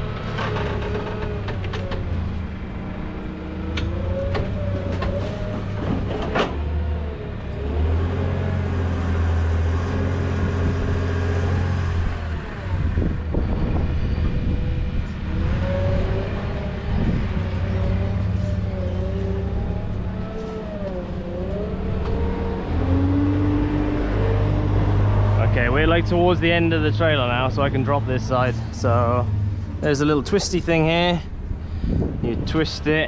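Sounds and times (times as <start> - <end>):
forklift engine running: 0.0 - 32.2.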